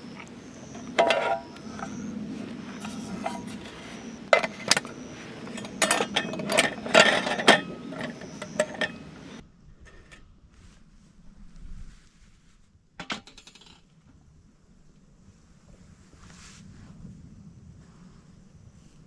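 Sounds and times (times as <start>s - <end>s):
metal cookware clinking: 0.0s - 9.4s.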